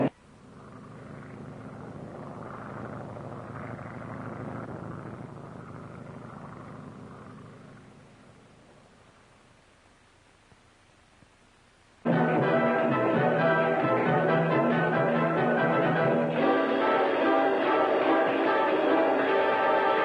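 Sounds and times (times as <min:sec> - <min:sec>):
droning engine-like rumble: 0:00.0 - 0:09.1.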